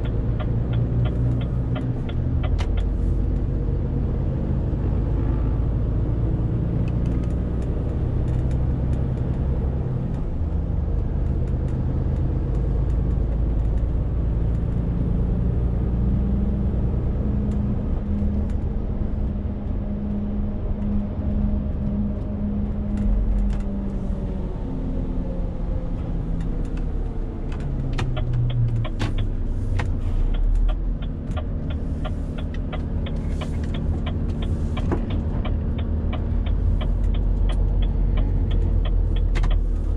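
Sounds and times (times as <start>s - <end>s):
truck diesel engine droning: 0.0s - 3.8s, 20.5s - 39.9s
regular sharp ticks: 28.0s - 39.9s.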